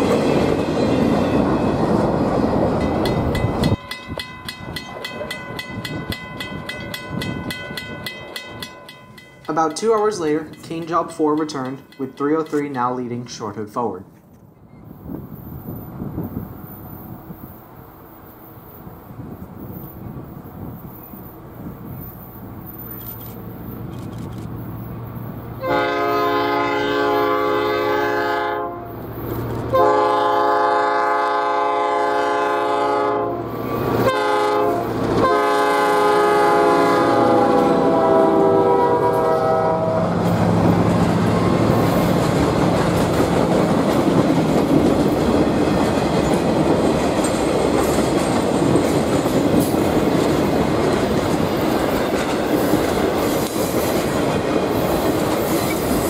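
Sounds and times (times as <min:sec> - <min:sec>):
train wheels on rails: 0:00.0 - 0:13.4, 0:14.2 - 0:56.0
diesel locomotive engine running: 0:23.4 - 0:56.0
train horn blasts: 0:25.6 - 0:29.0, 0:29.7 - 0:40.4.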